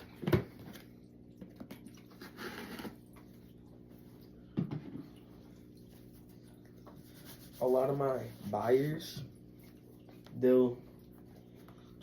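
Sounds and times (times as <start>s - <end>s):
wipe rubbing: 7.0s - 9.0s.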